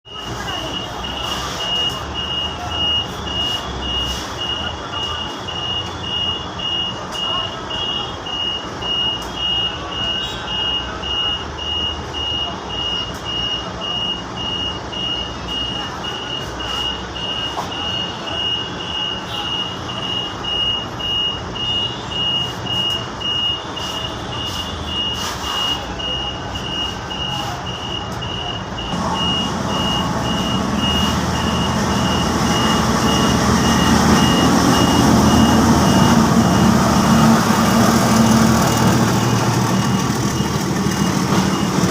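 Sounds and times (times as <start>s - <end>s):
level crossing alarm beeping: 0.1s - 41.9s
approaching train rumble: 28.8s - 41.9s.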